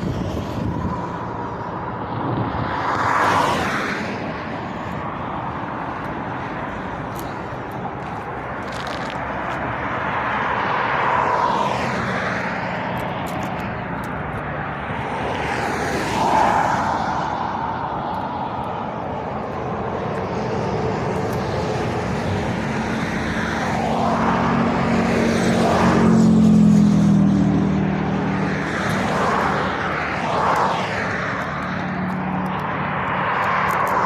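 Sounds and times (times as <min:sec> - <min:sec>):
road traffic passing at speed: 0:00.0 - 0:34.0.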